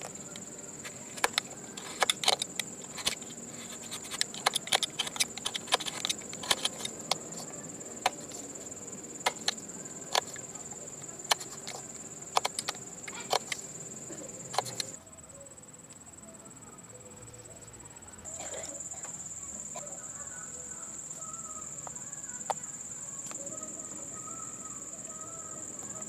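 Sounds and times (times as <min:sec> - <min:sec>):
high-pitched insect trill: 0:00.0 - 0:26.0
sharp clicks and taps: 0:11.0 - 0:13.6.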